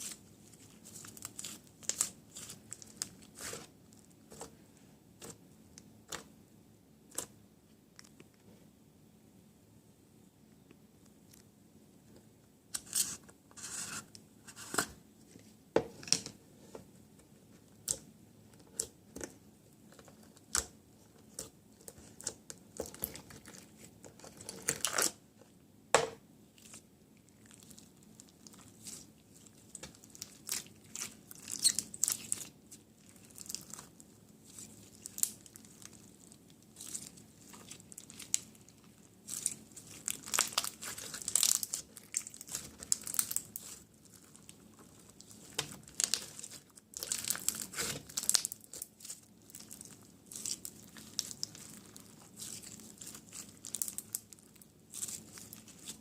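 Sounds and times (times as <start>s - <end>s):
packaging tearing and crinkling: 39.3s - 43.9s, 45.2s - 56.0s.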